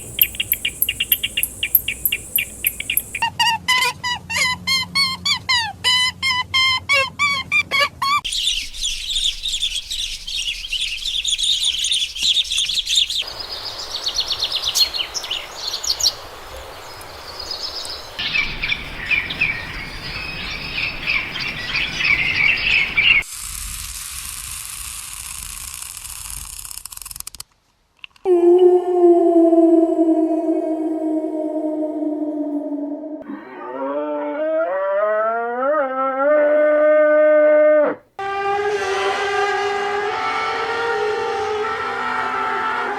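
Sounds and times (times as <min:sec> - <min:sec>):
birds chirping and singing: 0:00.0 - 0:03.2, 0:08.3 - 0:23.2.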